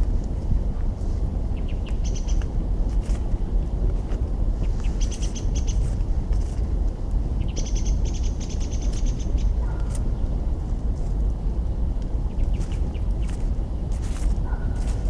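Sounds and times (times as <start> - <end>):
campfire crackles: 0.0 - 5.0, 5.8 - 7.4, 9.8 - 15.0
steady low rumble: 0.0 - 15.0.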